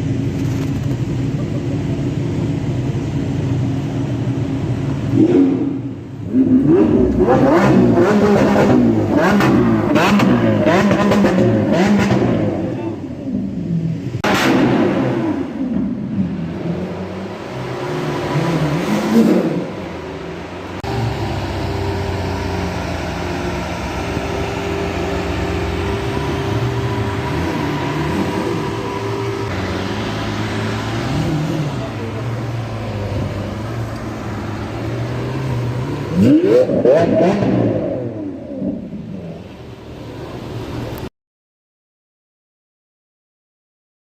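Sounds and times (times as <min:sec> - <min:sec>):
car engine revving hard: 0:05.1 - 0:12.8, 0:20.7 - 0:38.9.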